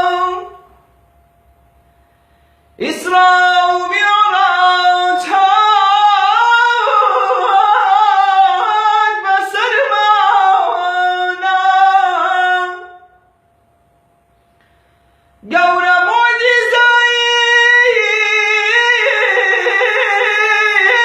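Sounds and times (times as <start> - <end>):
man singing unaccompanied: 0.0 - 0.7, 2.8 - 13.2, 15.4 - 21.0.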